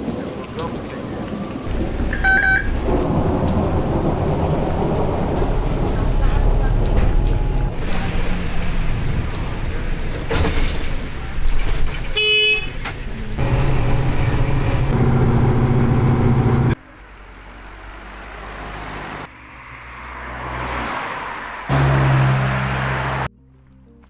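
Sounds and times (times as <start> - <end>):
road vehicle noise: 0.8 - 24.0.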